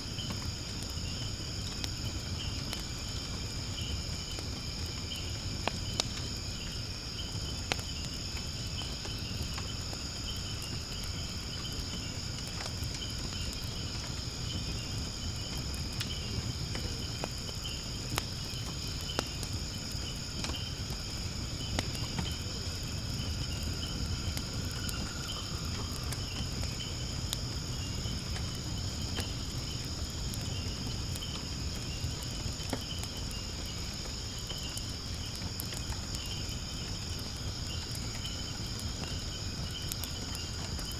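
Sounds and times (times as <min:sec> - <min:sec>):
insects chirping: 0:00.0 - 0:40.9
wood fire crackling and popping: 0:00.0 - 0:40.9.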